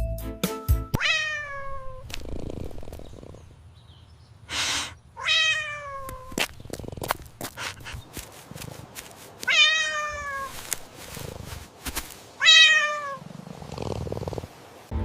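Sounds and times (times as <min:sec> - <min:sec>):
cat meowing: 0:01.0 - 0:02.1, 0:05.2 - 0:06.4, 0:09.4 - 0:10.6, 0:12.4 - 0:13.2.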